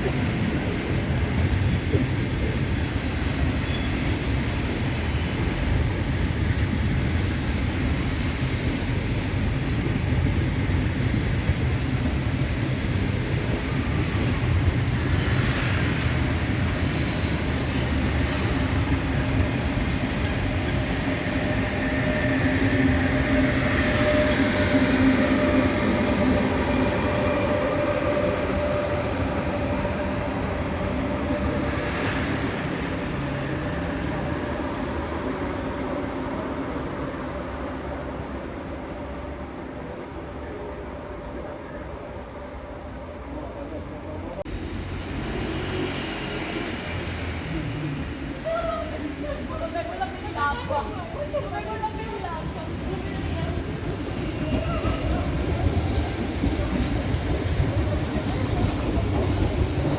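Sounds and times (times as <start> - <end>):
train wheels rumbling on rail: 0.0 - 39.6, 42.8 - 59.9.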